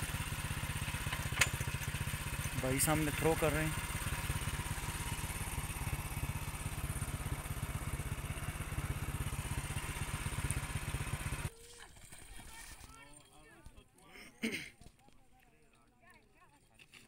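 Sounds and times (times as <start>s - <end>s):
small motorcycle engine running: 0.0s - 11.5s.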